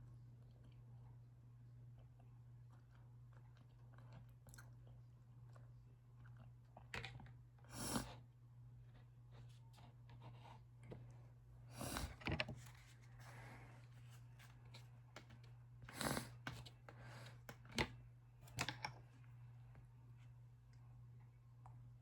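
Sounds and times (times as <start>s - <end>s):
person sniffing: 7.7s - 8.2s.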